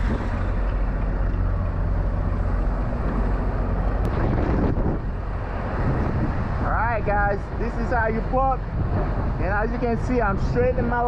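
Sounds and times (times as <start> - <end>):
diesel truck engine idling: 0.0 - 4.1.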